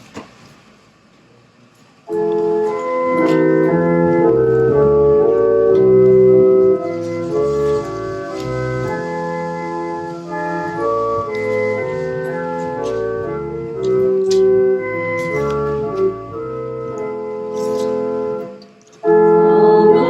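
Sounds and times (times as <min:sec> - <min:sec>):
organ playing a hymn: 0:02.1 - 0:20.0.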